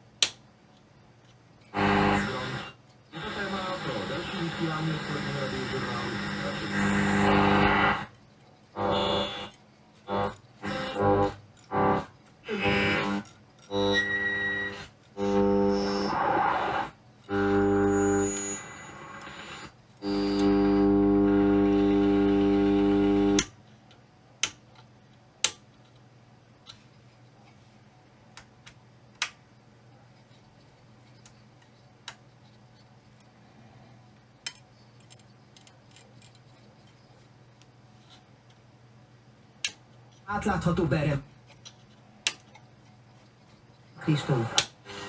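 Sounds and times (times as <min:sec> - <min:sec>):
small clicks and taps: 0:23.4 - 0:26.9.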